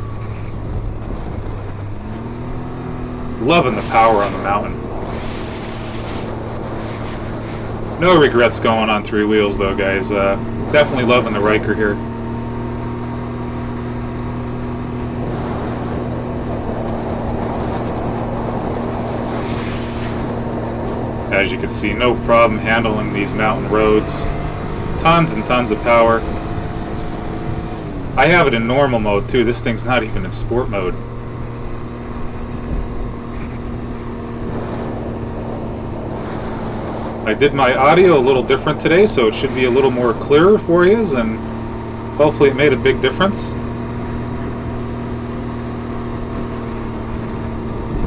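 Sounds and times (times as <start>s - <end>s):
motorcycle engine running: 0.0s - 48.0s
road and wind noise: 0.0s - 48.0s
wind rushing past: 3.6s - 10.8s, 15.1s - 21.4s.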